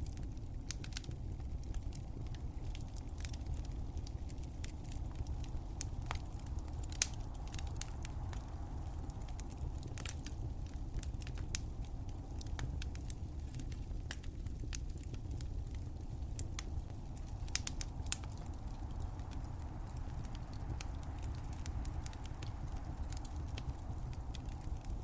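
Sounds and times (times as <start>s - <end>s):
low rumble of fire: 0.0s - 25.0s
wood fire crackling and popping: 0.0s - 25.0s.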